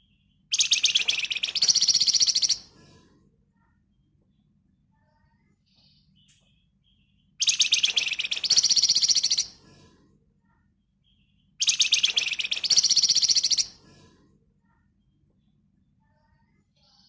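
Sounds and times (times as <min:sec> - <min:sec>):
songbird rattling trills: 0:00.6 - 0:02.6, 0:07.4 - 0:09.5, 0:11.6 - 0:13.7.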